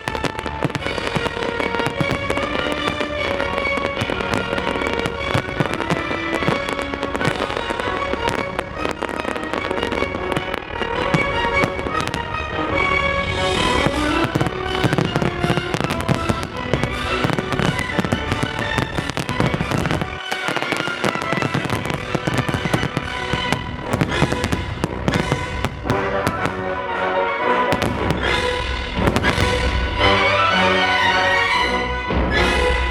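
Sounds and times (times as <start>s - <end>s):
fireworks bangs and crackles: 0.0s - 31.4s
loud music soundtrack: 0.0s - 32.9s.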